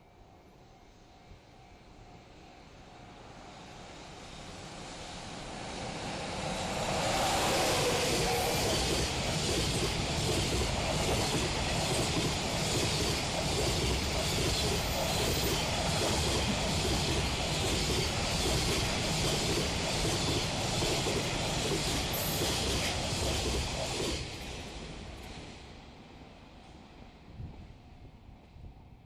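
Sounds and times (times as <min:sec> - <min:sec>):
freight train rolling past: 0:00.2 - 0:29.0
wheels clattering on rails: 0:06.8 - 0:25.4.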